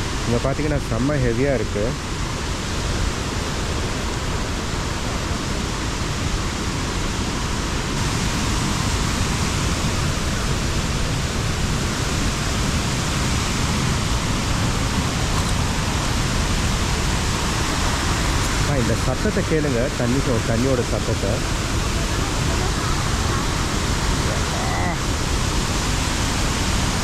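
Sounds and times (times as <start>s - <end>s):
water pouring over falls: 0.0s - 27.0s.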